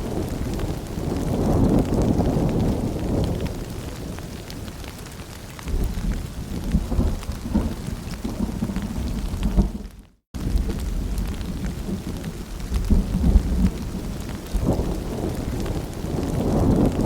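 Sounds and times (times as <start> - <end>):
rolling thunder: 0.0 - 5.0, 5.7 - 17.0
steady rain pattering: 0.0 - 17.0.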